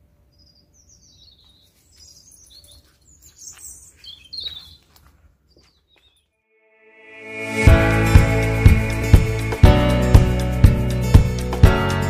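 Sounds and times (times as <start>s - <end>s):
small birds chirping: 0.2s - 6.3s.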